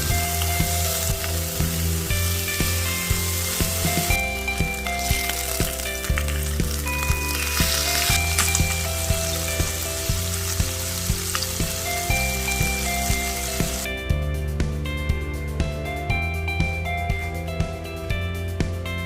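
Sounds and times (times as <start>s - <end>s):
meat sizzling: 0.0s - 13.9s
background music: 0.0s - 19.0s.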